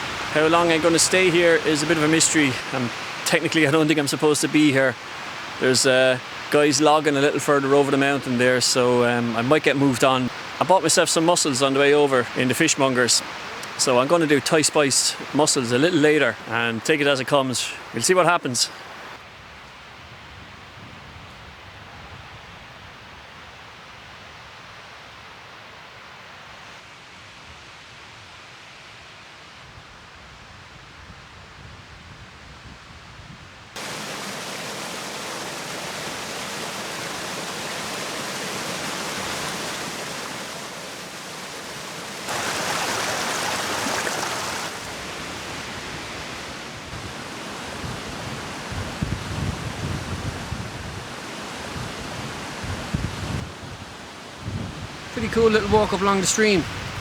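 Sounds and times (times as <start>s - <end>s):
stream rushing over rocks: 0.0s - 19.2s, 33.8s - 57.0s.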